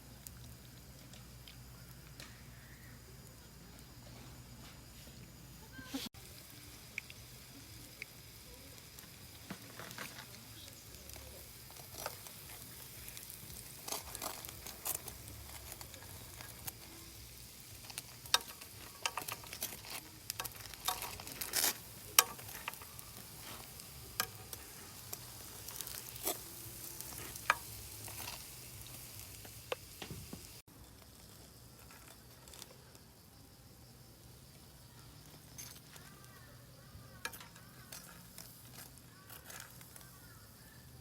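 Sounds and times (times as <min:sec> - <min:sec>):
food sizzling in hot oil: 0:00.0 - 0:41.0
oil popping and spattering: 0:06.2 - 0:32.1.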